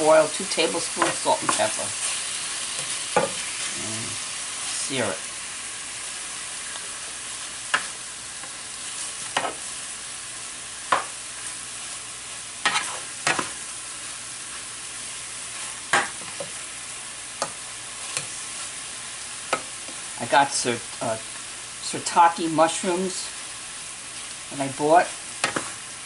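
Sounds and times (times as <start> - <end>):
beef sizzling in frying pan: 0.0 - 26.0
utensil scraping against pan: 12.6 - 13.6.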